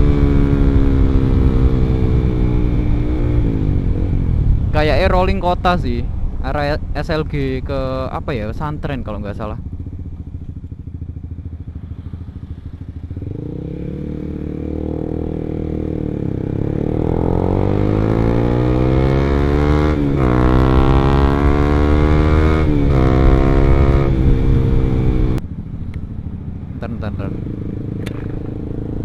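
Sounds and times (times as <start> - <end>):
motorcycle engine accelerating: 0.0 - 5.1, 9.4 - 29.0.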